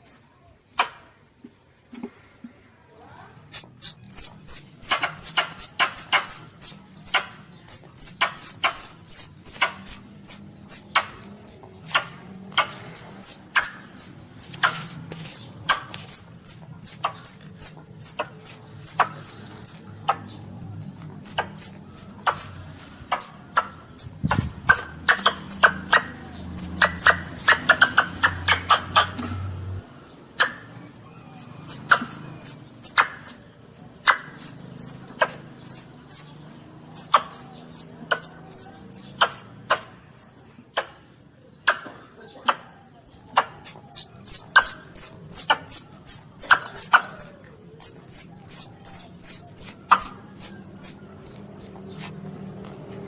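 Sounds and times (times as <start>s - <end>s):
baby civet squeaking: 3.5s - 29.2s, 31.1s - 40.3s, 43.6s - 52.2s.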